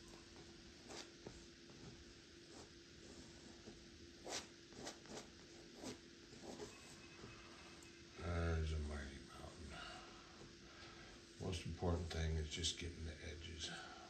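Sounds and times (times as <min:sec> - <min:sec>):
faint steady hum: 0:00.0 - 0:14.0
brush stroking paint on canvas: 0:00.8 - 0:07.3.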